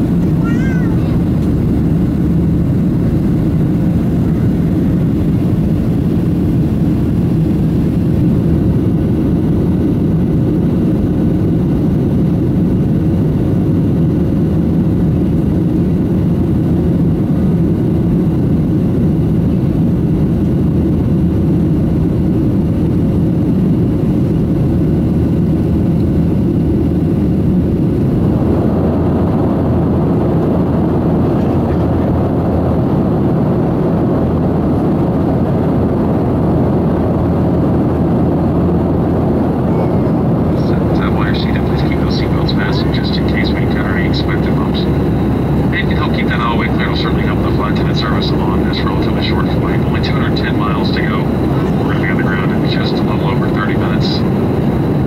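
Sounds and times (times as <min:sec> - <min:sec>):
jet engines and airflow rushing: 0:00.0 - 0:55.0
faint steady hum: 0:24.1 - 0:55.0.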